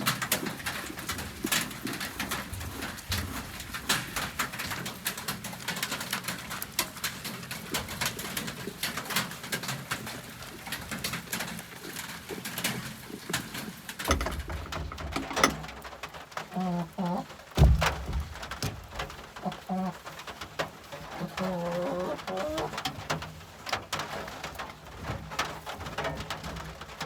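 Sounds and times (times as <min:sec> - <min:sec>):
birds cooing: 0:16.4 - 0:17.5, 0:19.1 - 0:22.9.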